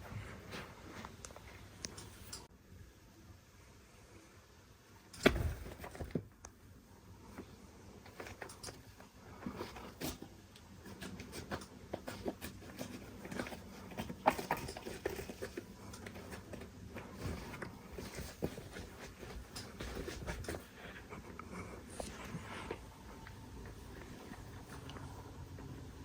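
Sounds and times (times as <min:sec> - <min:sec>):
kittens tapping and scratching: 0:07.3 - 0:25.8.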